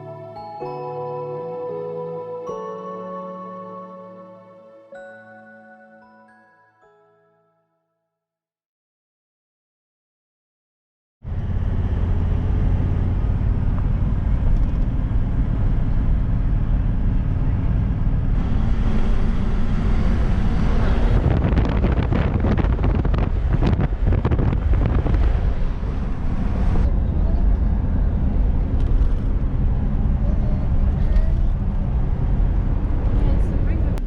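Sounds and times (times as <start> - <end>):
vehicle engine and road noise: 11.2 - 34.0
wind buffeting microphone: 12.8 - 34.0.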